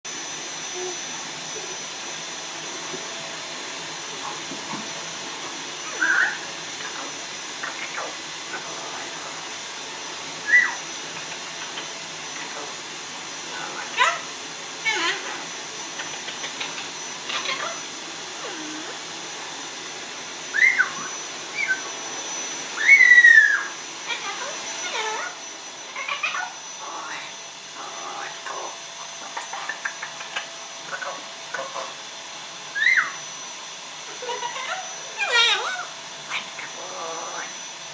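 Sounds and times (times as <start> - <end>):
parrot whistling: 5.8 - 8.2, 10.4 - 10.9, 20.5 - 21.9, 22.8 - 25.4, 32.7 - 33.2
parrot chirping: 5.8 - 8.8, 10.4 - 12.6, 13.5 - 15.4, 16.0 - 17.8, 20.5 - 21.9, 22.7 - 32.0, 32.7 - 33.2, 34.1 - 37.5.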